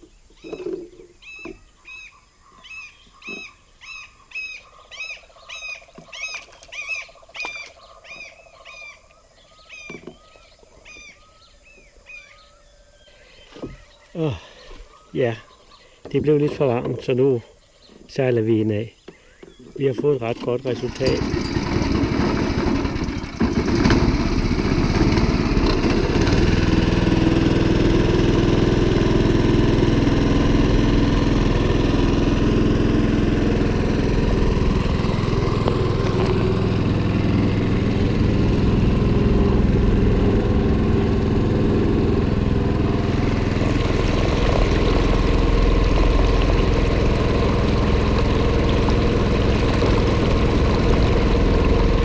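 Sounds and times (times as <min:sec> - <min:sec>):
outboard motor running: 0:09.6 - 0:12.6, 0:16.0 - 0:17.4, 0:18.5 - 0:52.0.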